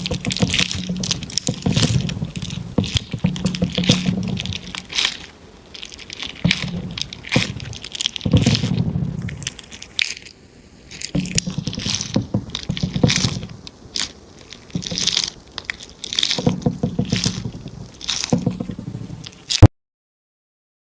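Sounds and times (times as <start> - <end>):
soft low thud: 0.0 - 5.0, 6.4 - 9.6, 16.4 - 19.3
crackly material popping: 0.0 - 19.7.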